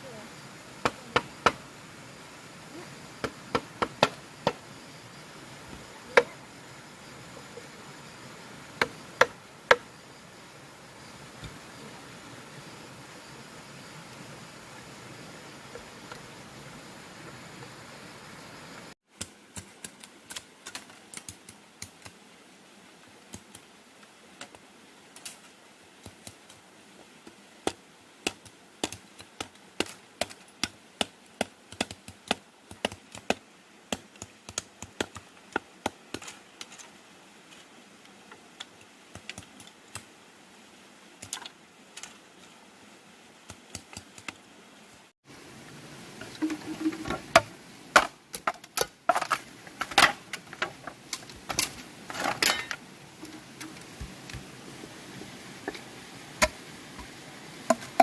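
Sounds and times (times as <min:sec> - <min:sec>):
rapid light taps and clicks: 0:27.7 - 0:36.7.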